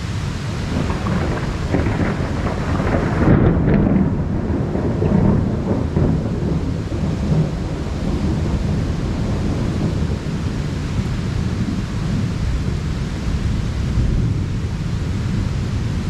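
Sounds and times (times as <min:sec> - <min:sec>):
heavy rain: 0:00.0 - 0:16.0
thunder rumbling: 0:00.0 - 0:16.0.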